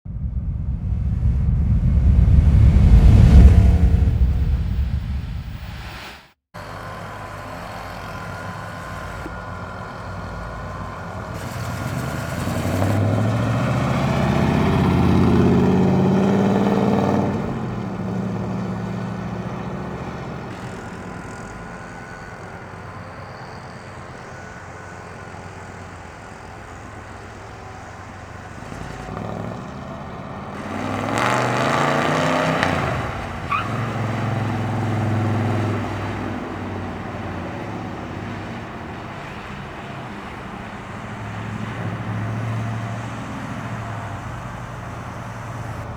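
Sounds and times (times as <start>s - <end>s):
car engine accelerating: 0.1s - 45.9s.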